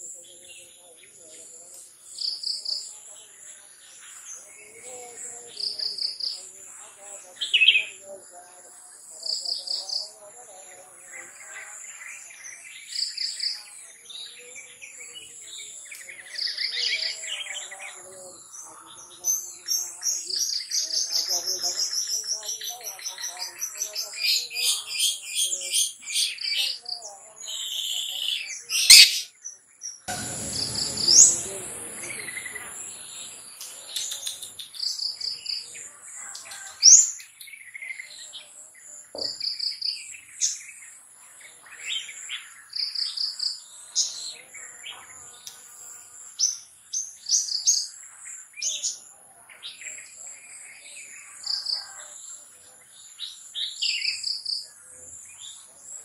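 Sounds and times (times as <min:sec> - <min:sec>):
bird singing chirps and trills: 0:00.0 - 0:56.0
rushing noise: 0:30.1 - 0:32.6
high insect drone: 0:30.1 - 0:36.7.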